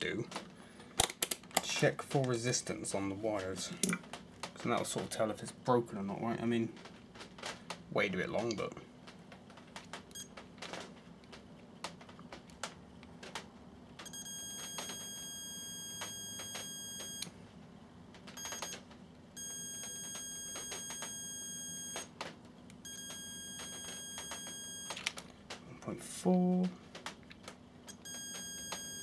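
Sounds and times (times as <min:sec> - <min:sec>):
multimeter continuity beeping: 0:10.1 - 0:10.4, 0:14.0 - 0:17.3, 0:18.4 - 0:18.8, 0:19.4 - 0:22.1, 0:22.7 - 0:25.2, 0:27.9 - 0:29.0.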